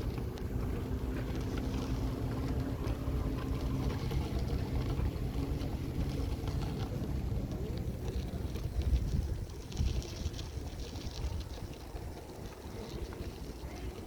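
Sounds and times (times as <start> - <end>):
faint steady hum: 0.0 - 14.0
wind buffeting microphone: 0.0 - 14.0.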